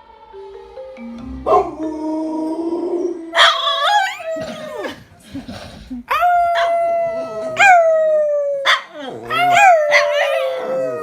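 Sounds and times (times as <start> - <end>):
dog howling: 1.5 - 4.9, 6.1 - 11.0.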